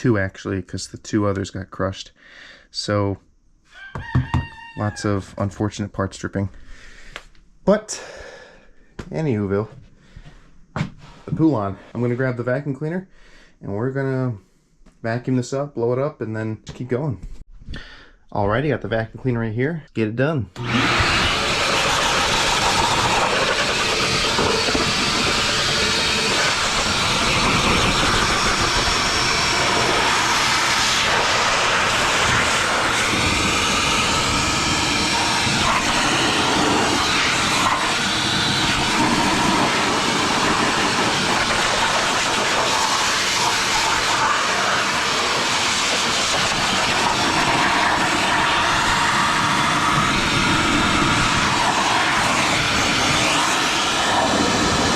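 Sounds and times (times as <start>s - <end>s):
vacuum cleaner running: 20.6s - 54.9s.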